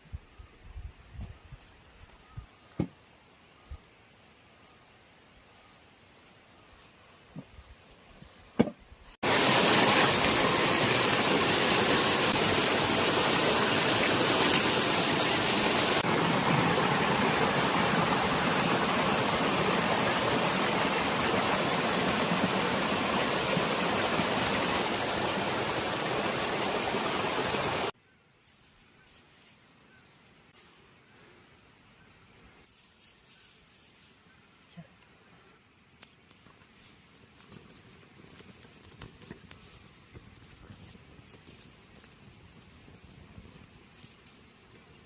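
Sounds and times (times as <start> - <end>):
rushing water: 9.2 - 28.0.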